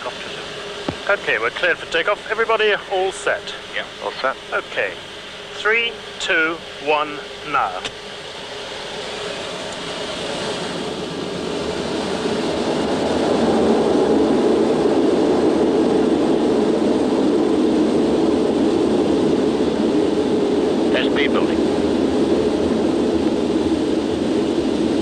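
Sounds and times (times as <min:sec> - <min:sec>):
jet engines at takeoff power: 0:00.0 - 0:25.0.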